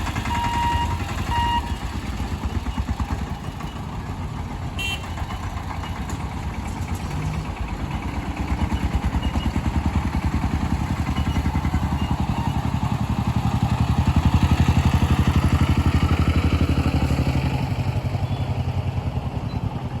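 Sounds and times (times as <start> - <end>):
low train hum: 0.0 - 8.8
train clattering on tracks: 0.0 - 18.2.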